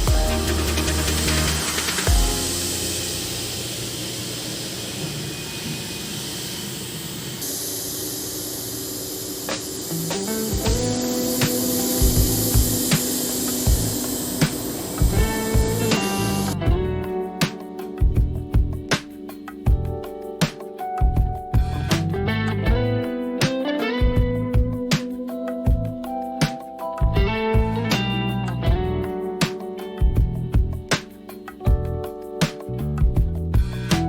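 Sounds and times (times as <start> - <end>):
drum hits: 0.0 - 2.6, 9.5 - 16.9
compressed air hissing: 0.0 - 16.6.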